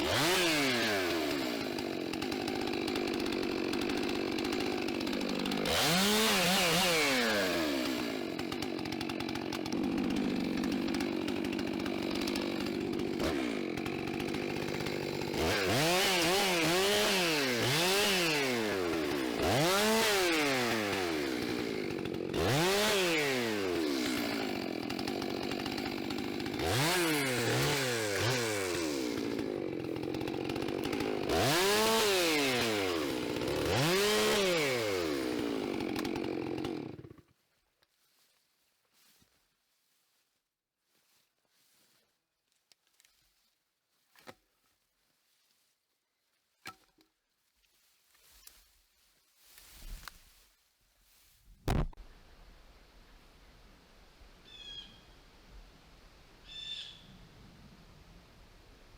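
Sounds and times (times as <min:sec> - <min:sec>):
chainsaw revving: 0:00.0 - 0:37.3.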